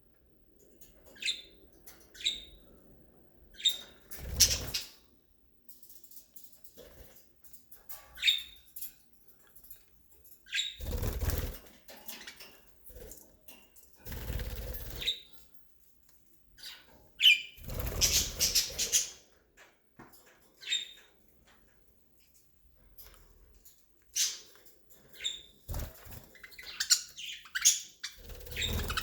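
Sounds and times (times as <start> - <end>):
bird chirps: 1.1 - 2.6, 25.2 - 29.0
birds fluttering wings: 4.1 - 4.9, 10.8 - 12.0, 14.0 - 15.2, 17.6 - 19.0, 25.7 - 26.6, 28.2 - 29.0.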